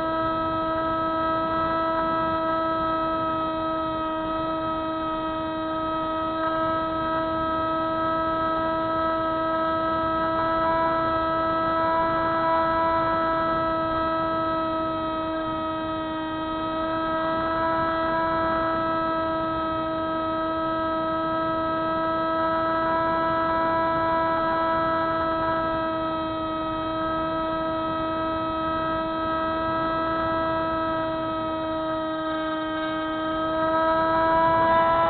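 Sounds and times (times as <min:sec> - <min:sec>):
model plane motor whine: 0:00.0 - 0:35.0.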